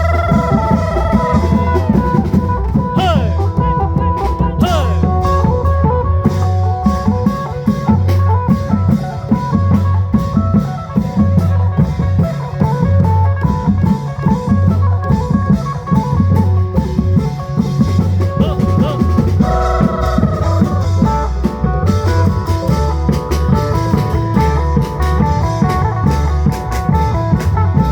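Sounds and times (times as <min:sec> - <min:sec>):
repeating bass line: 0:00.0 - 0:07.0, 0:18.0 - 0:27.9
drums beating a driving rhythm: 0:00.0 - 0:27.9.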